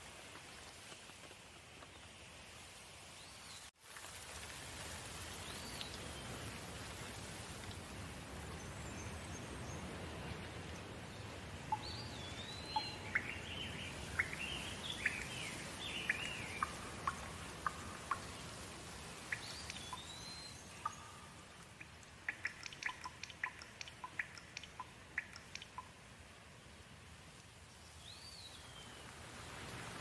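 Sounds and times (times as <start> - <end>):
steady rain hiss: 0.0 - 30.0
water drops dripping: 11.6 - 26.1.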